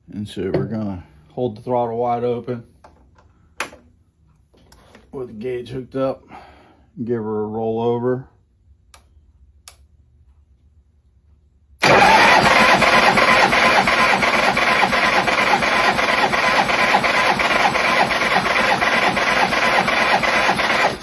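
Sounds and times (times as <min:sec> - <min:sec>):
engine cranking on starter: 0:11.8 - 0:21.0.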